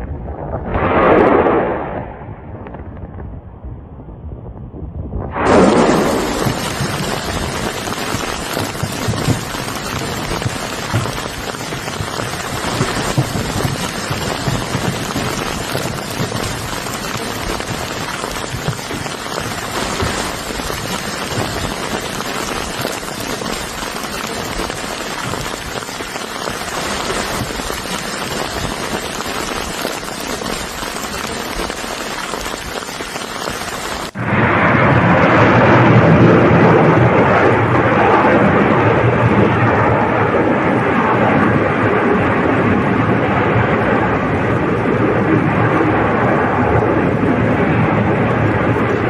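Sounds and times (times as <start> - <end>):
steady rushing hiss: 5.4 - 34.2.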